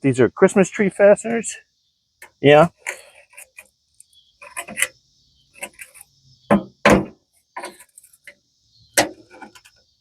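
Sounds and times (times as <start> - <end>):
hollow knocks and clunks: 6.5 - 7.9.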